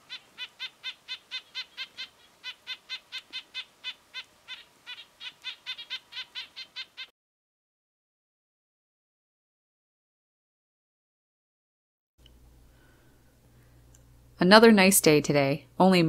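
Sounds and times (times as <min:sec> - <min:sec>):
bird calling in fast notes: 0:00.0 - 0:07.1.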